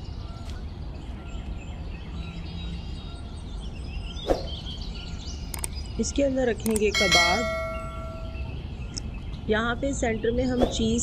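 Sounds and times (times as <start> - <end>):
low background hum: 2.8 - 11.0.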